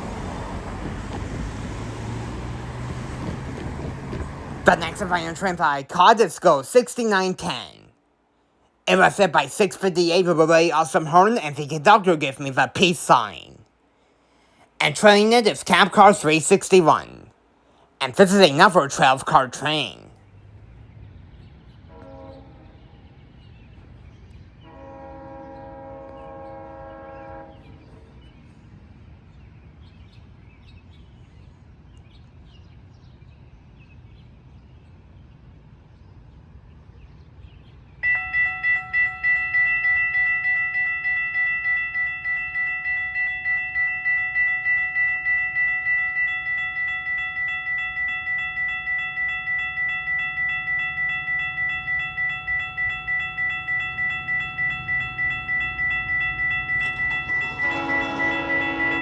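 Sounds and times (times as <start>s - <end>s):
level crossing warning bell: 0.0s - 7.9s, 8.9s - 13.5s, 14.8s - 17.4s, 18.0s - 20.2s, 38.0s - 59.0s
locomotive air horn: 21.9s - 22.8s, 24.6s - 27.8s, 56.8s - 59.0s.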